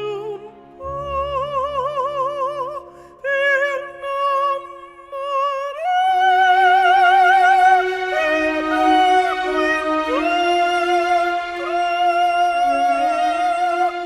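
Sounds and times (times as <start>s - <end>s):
operatic soprano singing: 0.0s - 14.0s
singer breathing: 2.8s - 3.2s.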